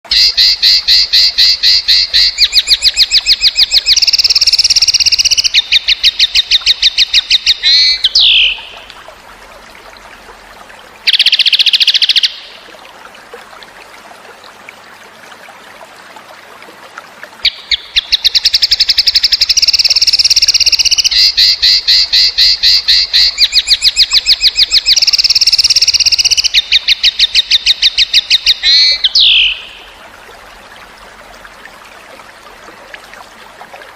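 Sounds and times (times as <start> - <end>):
bird trilling: 0.1 - 8.8, 17.4 - 29.9
trickle of water: 0.1 - 33.9.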